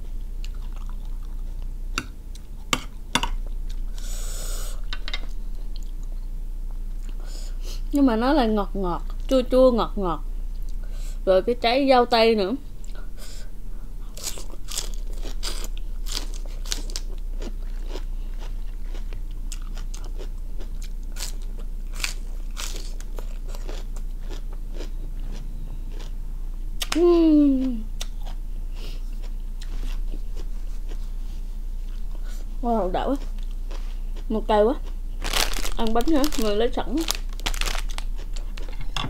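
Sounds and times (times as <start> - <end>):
wet crunchy chewing of lettuce: 14.1 - 26.2, 28.0 - 32.4, 33.0 - 38.8.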